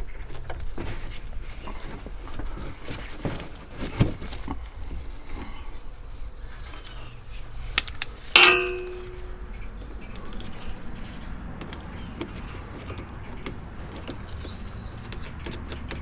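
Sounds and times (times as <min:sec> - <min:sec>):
loud ringing metallic clang: 0:08.4 - 0:09.6
metal knocks and clicks: 0:08.4 - 0:09.6.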